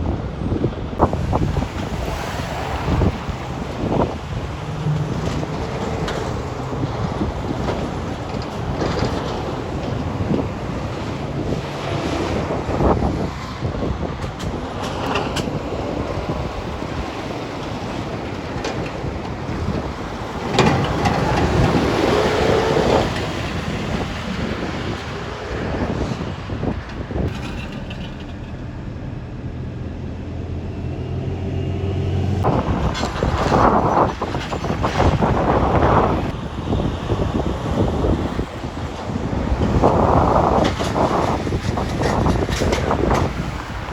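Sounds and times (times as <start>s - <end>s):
low vehicle rumble: 0.0s - 43.9s
wind buffeting microphone: 0.0s - 43.9s
pulsing mechanical noise: 26.6s - 38.8s
diesel engine running: 26.6s - 43.9s.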